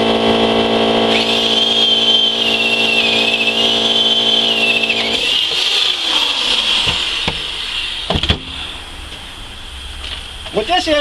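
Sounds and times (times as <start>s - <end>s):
power tool motor whining: 0.0s - 8.8s.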